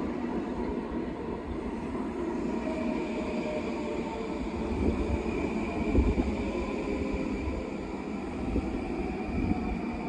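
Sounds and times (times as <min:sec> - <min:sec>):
high train whine: 0:00.0 - 0:10.0.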